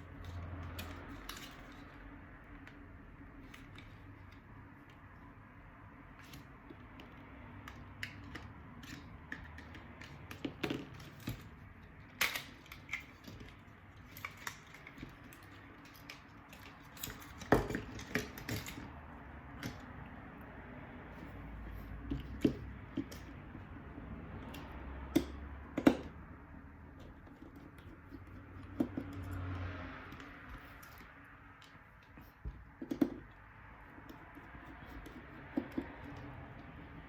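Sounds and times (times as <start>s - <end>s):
light clicks and taps of handling: 6.1s - 20.4s, 21.1s - 26.3s, 26.9s - 37.0s.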